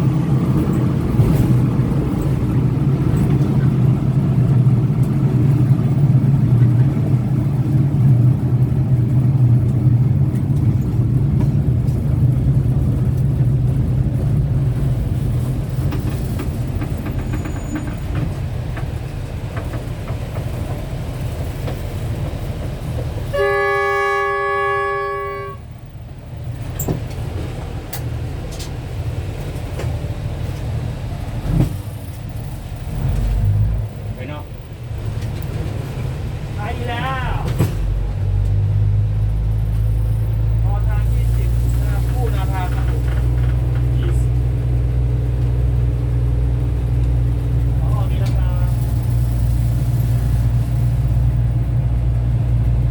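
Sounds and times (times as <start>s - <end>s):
train rumbling: 0.0s - 52.9s
train horn blast: 23.3s - 25.8s.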